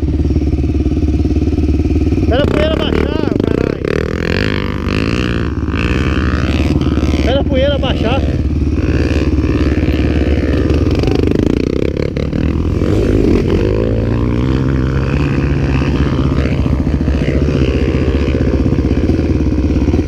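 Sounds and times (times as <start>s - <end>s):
dirt bike engines revving: 0.0s - 20.0s.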